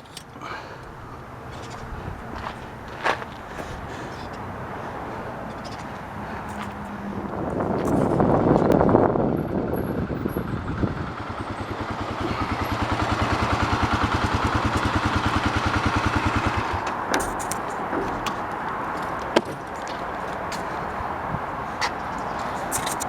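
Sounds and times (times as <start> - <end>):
vehicle engine running: 0.0 - 23.0
sharp clicks: 22.5 - 23.0.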